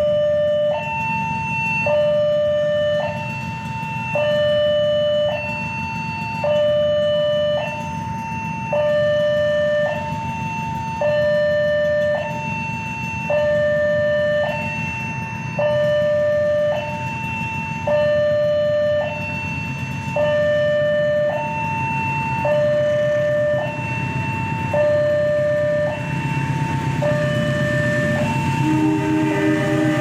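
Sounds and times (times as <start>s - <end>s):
two-tone warning alarm: 0.0s - 30.0s
low rumble: 24.5s - 30.0s.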